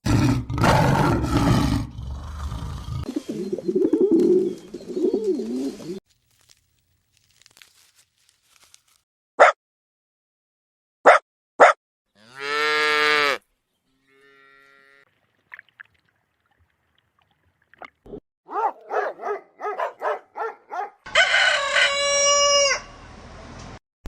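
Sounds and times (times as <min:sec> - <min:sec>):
cow mooing: 0:12.1 - 0:15.1
loud chicken call: 0:21.0 - 0:23.1.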